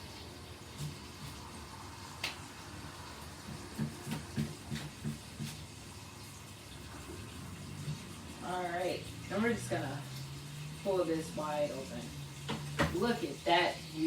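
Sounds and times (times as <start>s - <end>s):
knife knocking on cutting board: 3.5s - 5.6s.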